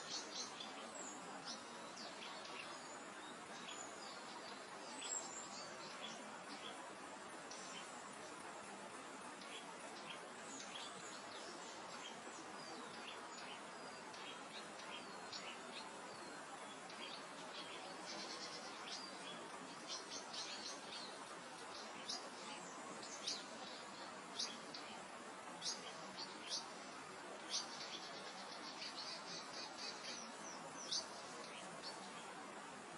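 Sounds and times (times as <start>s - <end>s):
gentle wind: 0.0s - 32.9s
small birds chirping: 0.0s - 32.9s.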